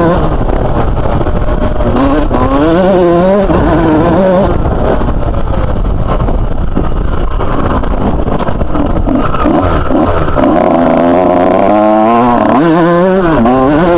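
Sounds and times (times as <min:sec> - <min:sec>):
motocross bike engine revving: 0:00.0 - 0:06.2, 0:07.0 - 0:13.9.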